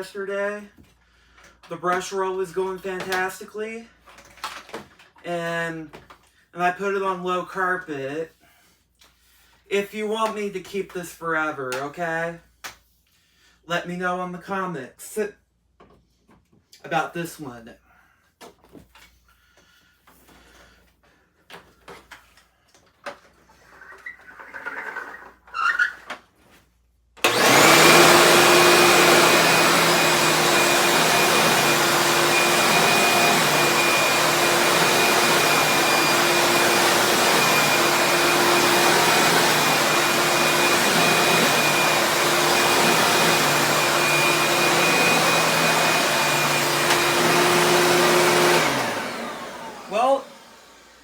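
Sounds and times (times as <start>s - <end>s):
vacuum cleaner running: 27.2s - 51.0s.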